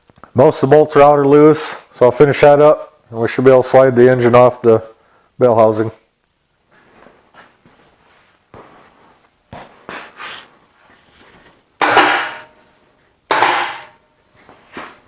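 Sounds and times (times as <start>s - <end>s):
metal clanging on metal: 11.8s - 12.7s, 13.3s - 14.1s.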